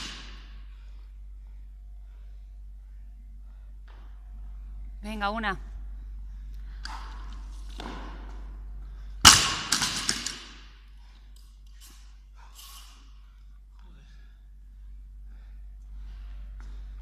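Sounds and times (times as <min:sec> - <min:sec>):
barbell crashing to floor: 0:00.0 - 0:00.4, 0:09.2 - 0:10.7
heavy breathing: 0:10.9 - 0:17.0.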